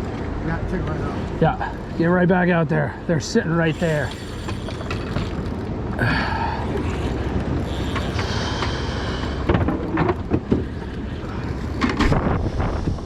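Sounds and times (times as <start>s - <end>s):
boat on water rumble: 0.0s - 13.0s
wind on microphone: 6.7s - 13.0s.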